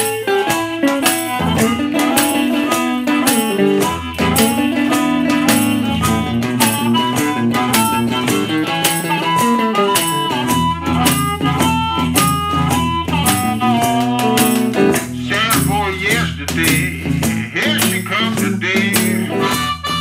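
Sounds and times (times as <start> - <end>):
blues band playing: 0.0 - 20.0
harmonica notes: 0.0 - 20.0
rattling washboard beat: 0.0 - 20.0.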